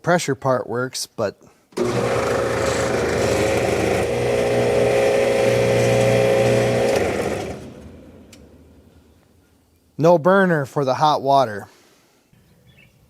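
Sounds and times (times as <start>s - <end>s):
pressure washer motor and pump running: 1.8s - 8.7s.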